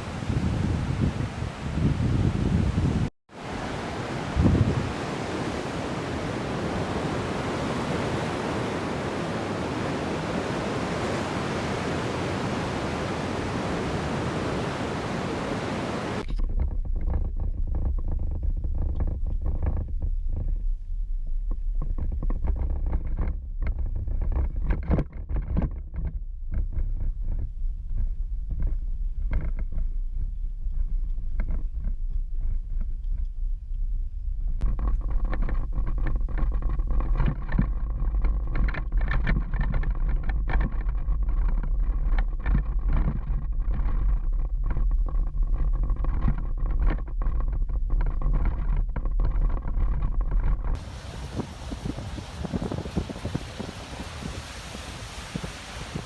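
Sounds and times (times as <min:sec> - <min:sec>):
rushing water: 0:00.0 - 0:16.3, 0:50.8 - 0:56.0
low rumble with gusty buffeting: 0:04.2 - 0:05.1, 0:16.2 - 0:56.0.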